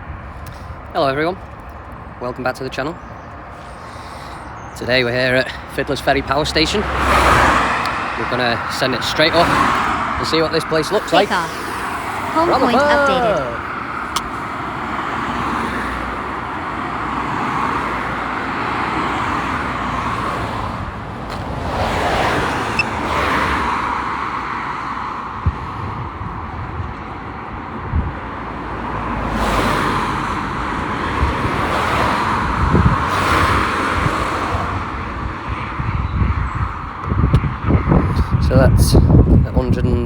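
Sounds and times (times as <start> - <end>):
wind buffeting microphone: 0.0 - 2.2, 25.3 - 40.0
cars passing: 0.0 - 39.5.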